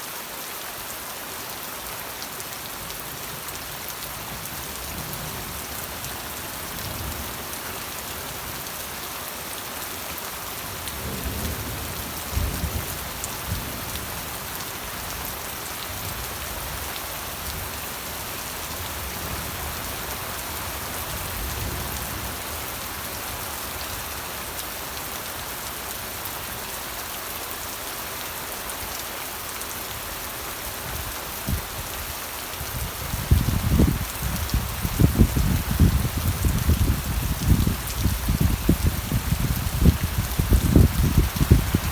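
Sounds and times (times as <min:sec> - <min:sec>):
steady rain hissing: 0:00.0 - 0:41.9
thunder rumbles: 0:32.7 - 0:41.9.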